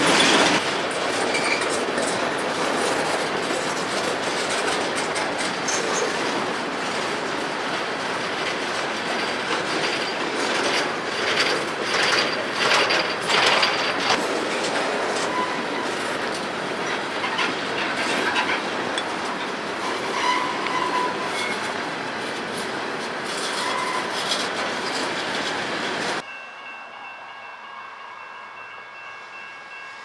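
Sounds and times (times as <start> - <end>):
train wheel squeals: 0.0 - 7.0, 9.0 - 14.2, 15.2 - 21.8, 23.2 - 25.3
train wheels clattering over rails: 0.0 - 26.2.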